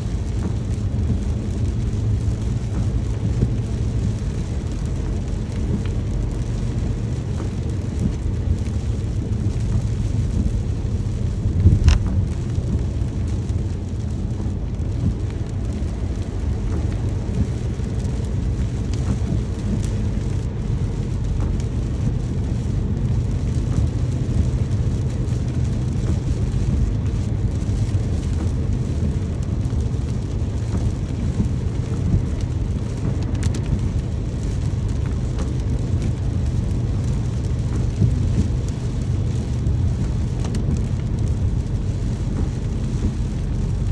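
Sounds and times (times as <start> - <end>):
low rumble: 0.0 - 43.9
steady rain: 0.0 - 43.9.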